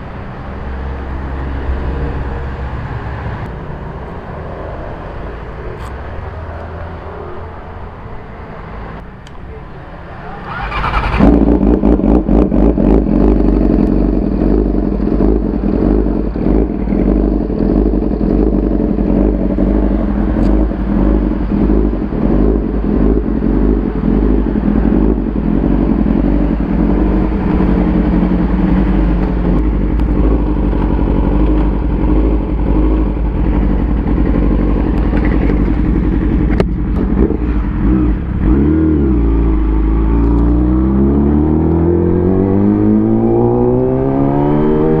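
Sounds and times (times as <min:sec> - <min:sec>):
motorcycle engine running: 0:10.5 - 0:45.0.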